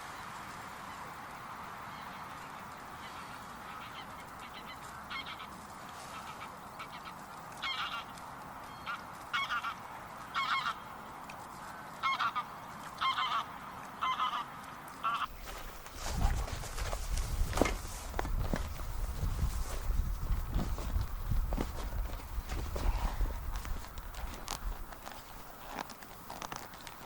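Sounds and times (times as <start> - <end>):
geese honking: 2.9 - 10.9, 11.9 - 15.4.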